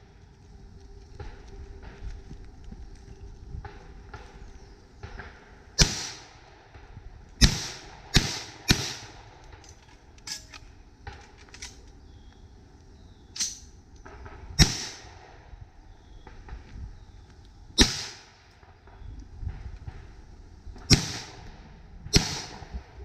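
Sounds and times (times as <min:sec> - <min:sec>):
loud gunshots: 0:05.8 - 0:06.3, 0:07.4 - 0:09.2, 0:14.6 - 0:15.1, 0:17.8 - 0:18.3, 0:20.9 - 0:21.4, 0:22.1 - 0:22.8
faint gunshot pops: 0:22.2 - 0:22.7.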